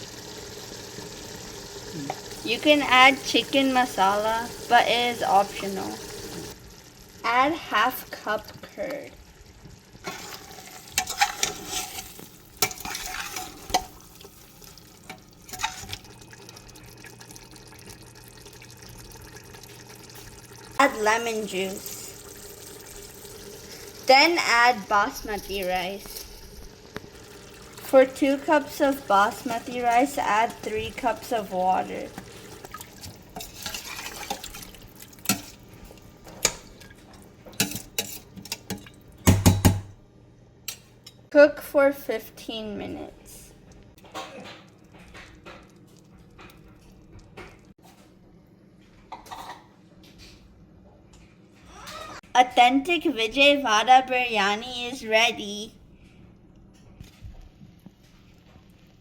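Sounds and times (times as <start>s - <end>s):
water poured into pot: 9.9s - 39.2s
spoon stirring and scraping pot: 10.0s - 14.4s, 15.0s - 16.1s, 32.1s - 39.0s
spoon knocking against pot: 38.6s - 40.0s.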